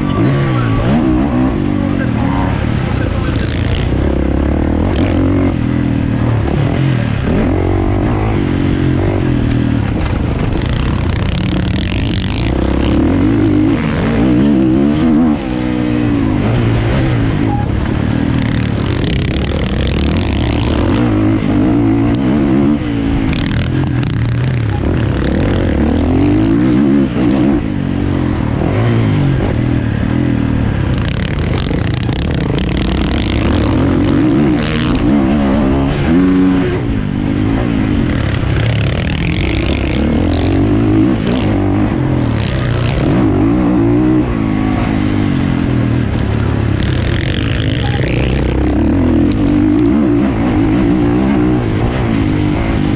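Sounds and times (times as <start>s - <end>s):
motocross bike engine revving: 0.0s - 52.9s.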